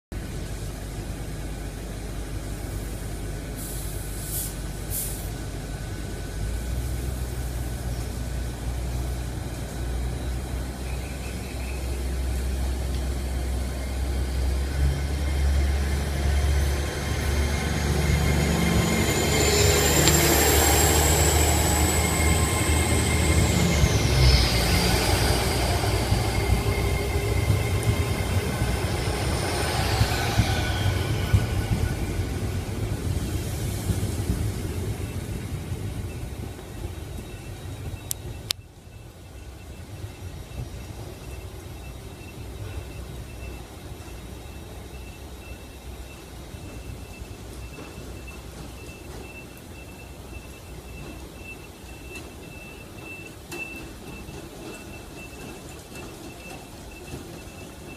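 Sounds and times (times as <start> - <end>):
train rumbling: 0.1 - 57.9
short hisses: 3.6 - 5.4
train motor whine rising: 11.8 - 49.3.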